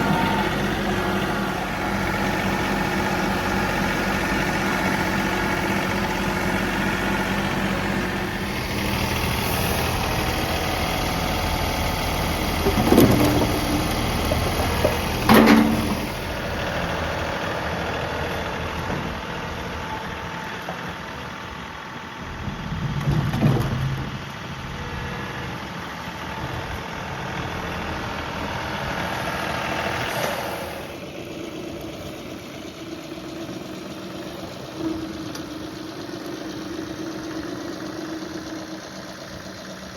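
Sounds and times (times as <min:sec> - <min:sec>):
tractor diesel engine running: 0:00.0 - 0:39.9
loud clunks: 0:14.8 - 0:16.2.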